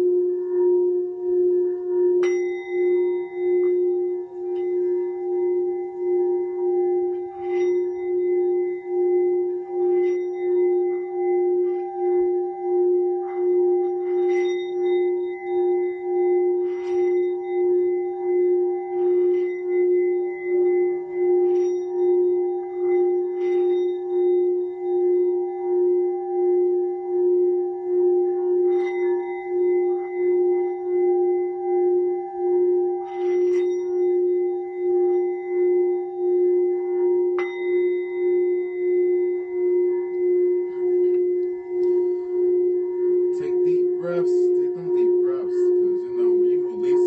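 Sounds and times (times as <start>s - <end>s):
singing bowl low tone: 0.0s - 47.0s.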